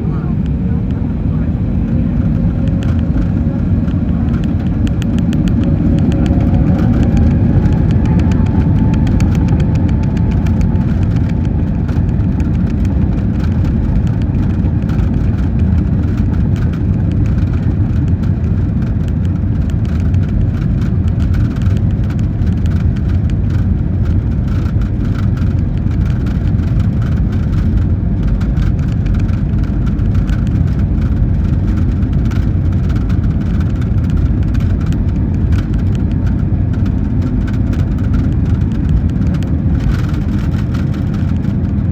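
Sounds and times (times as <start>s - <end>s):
jet engines spooling up: 0.0s - 18.1s
loud takeoff rumble: 0.0s - 41.9s.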